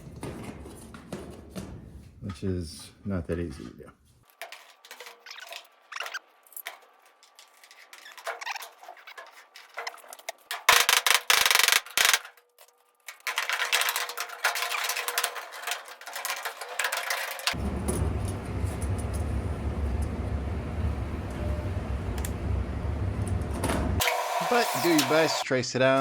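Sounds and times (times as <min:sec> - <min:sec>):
scraping on sheet metal ductwork: 0:00.0 - 0:02.3, 0:04.0 - 0:19.8.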